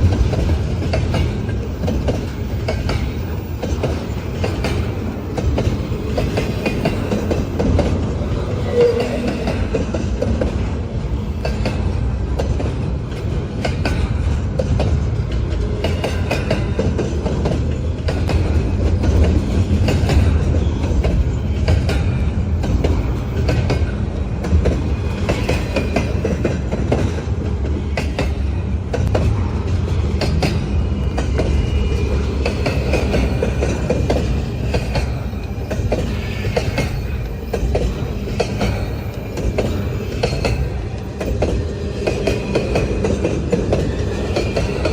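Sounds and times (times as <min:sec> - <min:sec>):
wheels clicking over rail joints: 0:00.0 - 0:44.9
faint high wheel squeal: 0:08.5 - 0:09.6.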